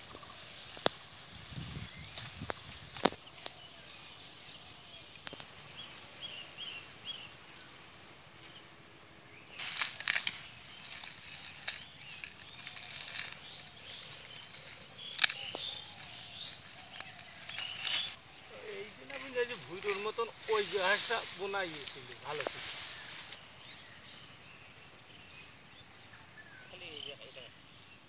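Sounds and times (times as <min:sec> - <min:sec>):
small bird chirping: 0:09.5 - 0:20.4
hand rustling cut grass: 0:09.6 - 0:23.4.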